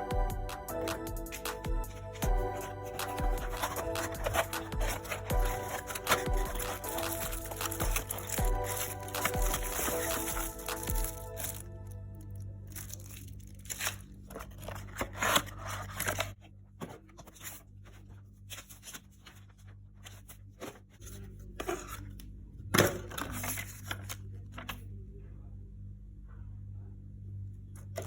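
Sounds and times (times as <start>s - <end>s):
steady low hum: 0.0s - 28.0s
packaging tearing and crinkling: 2.5s - 11.6s, 12.7s - 16.3s.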